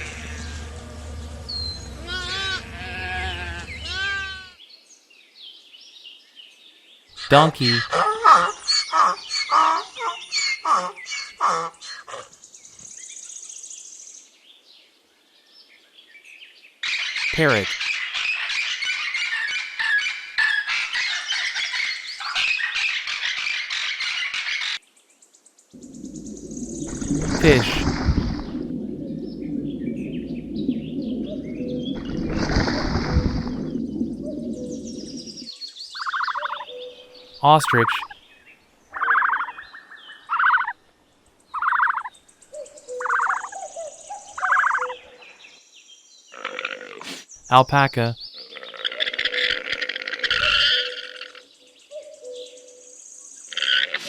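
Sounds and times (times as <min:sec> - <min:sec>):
parrot calls: 0:01.8 - 0:04.6
faint high-pitched pulsing chirr: 0:25.8 - 0:32.3.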